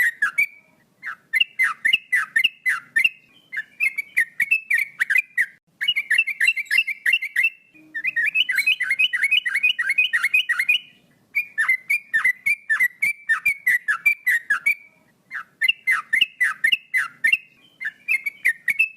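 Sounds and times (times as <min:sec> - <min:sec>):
bulbul singing: 0:00.0 - 0:18.9.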